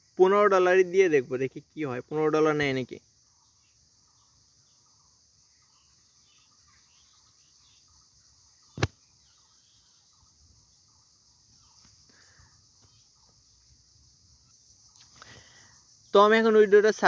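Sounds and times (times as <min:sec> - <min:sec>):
faint steady hiss: 0:00.0 - 0:17.0
sharp click: 0:08.8 - 0:09.0.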